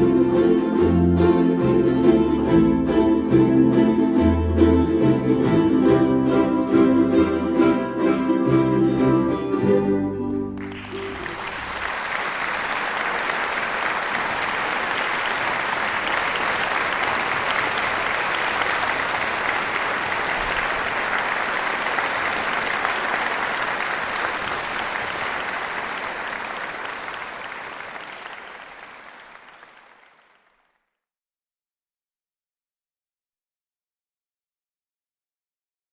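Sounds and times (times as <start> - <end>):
live band with plucked strings: 0.0 - 12.0
audience applauding: 10.2 - 30.8.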